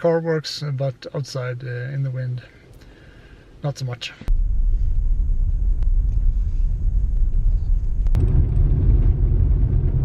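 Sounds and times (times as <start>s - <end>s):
car driving rumble: 4.3s - 10.0s.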